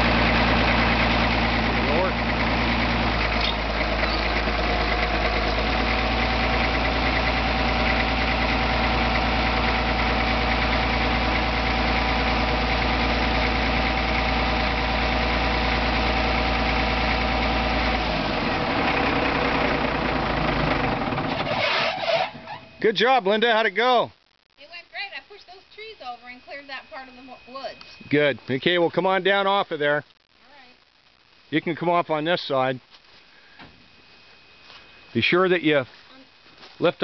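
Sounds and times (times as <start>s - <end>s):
diesel engine idling: 0.0s - 23.7s, 25.0s - 29.6s.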